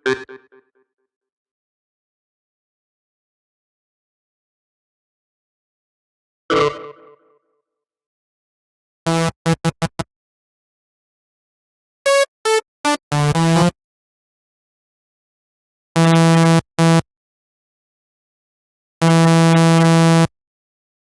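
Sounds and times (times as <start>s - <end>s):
synthesizer notes: 6.5s - 7.2s.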